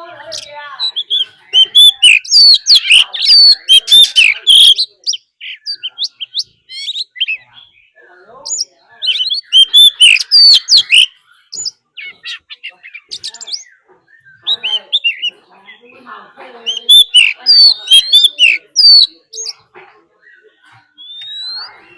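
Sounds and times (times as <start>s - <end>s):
bird singing whistles: 21.0s - 21.9s.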